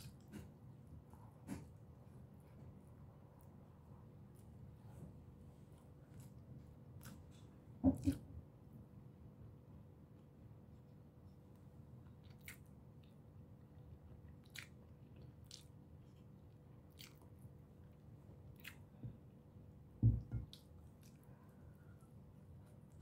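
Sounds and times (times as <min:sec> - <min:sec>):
person chewing food: 0:05.8 - 0:08.3, 0:11.5 - 0:19.4, 0:20.4 - 0:23.0
dull thump: 0:20.0 - 0:20.4.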